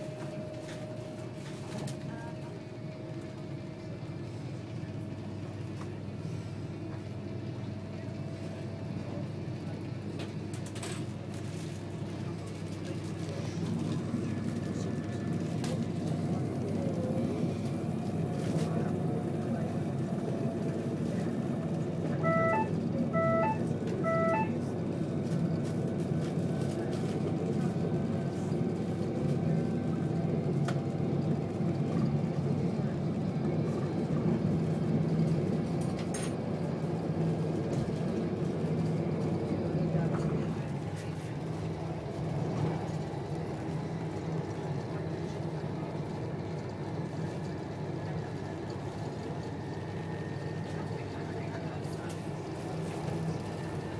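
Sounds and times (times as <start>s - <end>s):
train rumbling at speed: 0.0s - 53.9s
two-note electronic beep: 22.2s - 24.5s.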